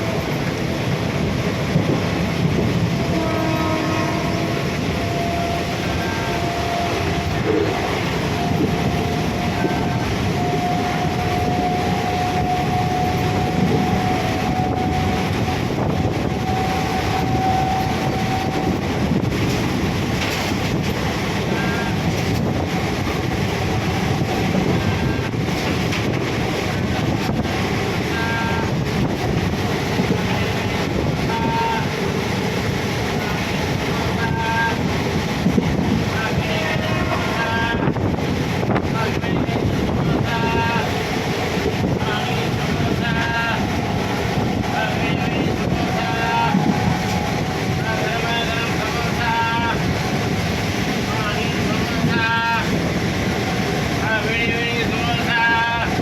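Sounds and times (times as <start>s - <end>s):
moving vehicle rumbling: 0.0s - 56.0s
long steady tone: 3.1s - 18.8s.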